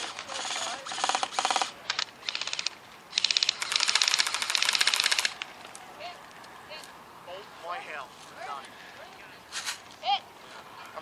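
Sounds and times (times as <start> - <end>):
airsoft gun rapid clicking bursts: 0.0 - 5.4.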